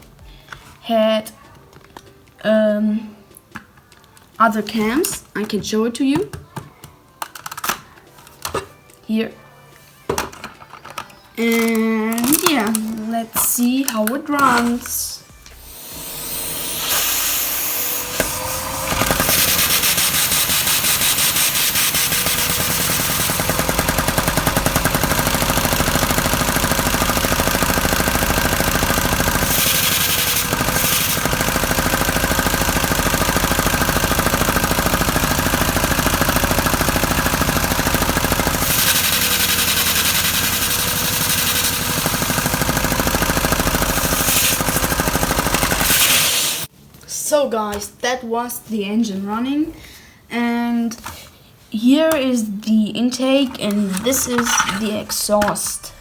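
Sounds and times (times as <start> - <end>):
vacuum cleaner hum: 15.4 - 46.7
model engine rapid plastic clatter: 18.8 - 46.7, 53.5 - 54.9.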